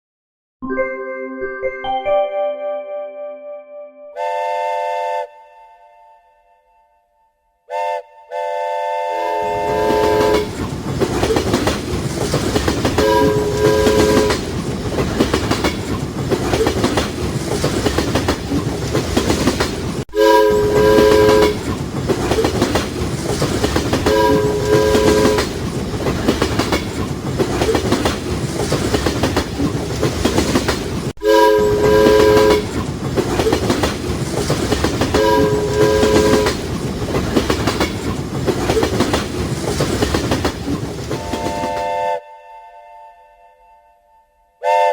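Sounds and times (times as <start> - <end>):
train horn blasts: 4.0 - 10.6, 13.0 - 14.5, 20.1 - 21.6, 24.0 - 25.5, 31.2 - 32.7, 35.1 - 36.6, 41.2 - 44.9
train wheels clacking on rails: 9.5 - 42.0.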